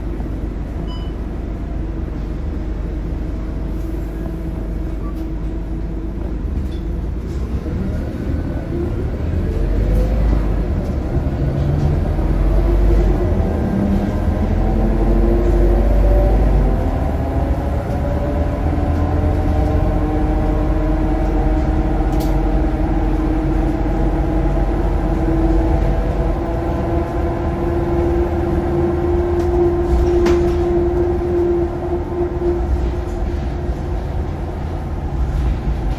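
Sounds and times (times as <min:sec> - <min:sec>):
bus drivetrain drone and whine: 0:00.0 - 0:35.9.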